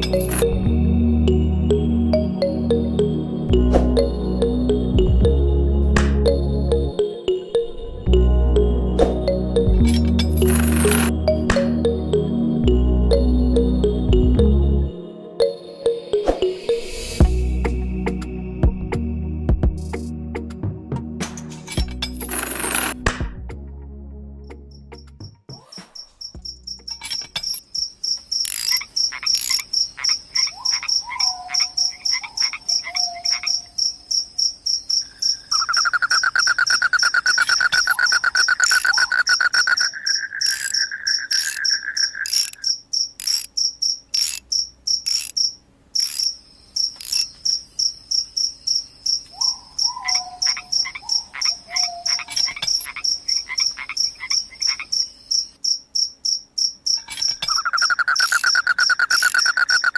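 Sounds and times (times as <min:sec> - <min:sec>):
insects chirping: 0:00.0 - 0:00.6, 0:24.6 - 0:59.9.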